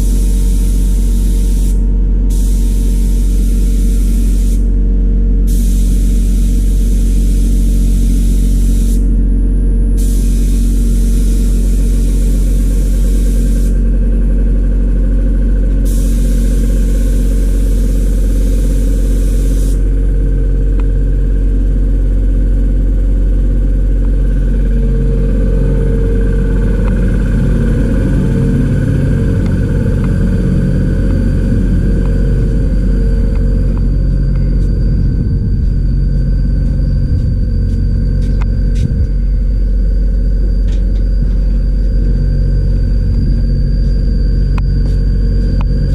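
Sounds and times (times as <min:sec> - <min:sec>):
spray hissing: 0:00.0 - 0:04.7, 0:05.5 - 0:09.0, 0:10.0 - 0:13.8, 0:15.9 - 0:19.8
steady motor hum: 0:00.0 - 0:45.9.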